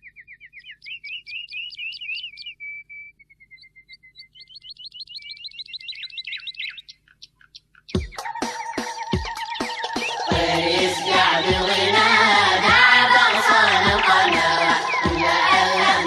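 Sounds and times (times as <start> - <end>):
songbird singing trills: 0.0 - 12.3.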